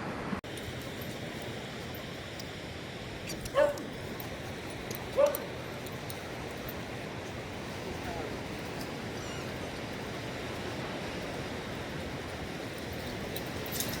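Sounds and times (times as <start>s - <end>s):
dog yipping: 3.5s - 3.9s, 5.2s - 5.5s, 9.2s - 9.7s.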